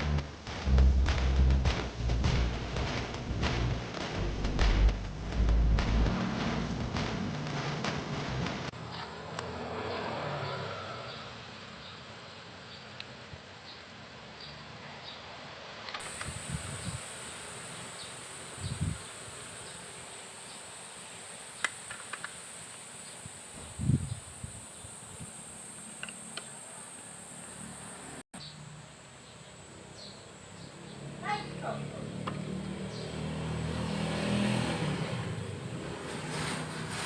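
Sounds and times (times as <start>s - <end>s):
high-pitched insect drone: 16.0s - 35.4s
faint hiss: 16.0s - 37.0s.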